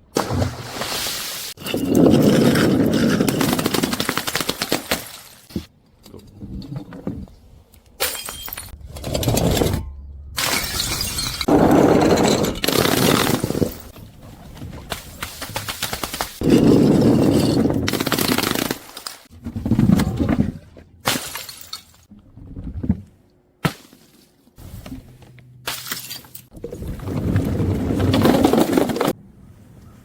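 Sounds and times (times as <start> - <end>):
glass bottles shattering: 1.6 - 4.0, 8.0 - 8.8, 10.4 - 13.9, 21.1 - 22.1, 25.7 - 26.5.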